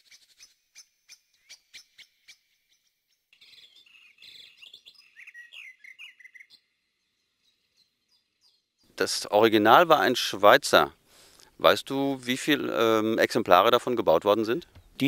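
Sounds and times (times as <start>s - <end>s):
bird chirping and warbling: 0.0s - 8.9s.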